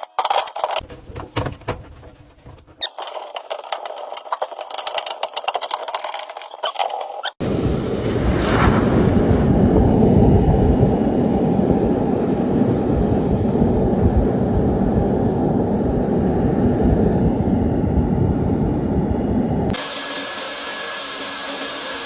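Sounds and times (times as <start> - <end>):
muffled low rumbling: 7.5 - 19.7.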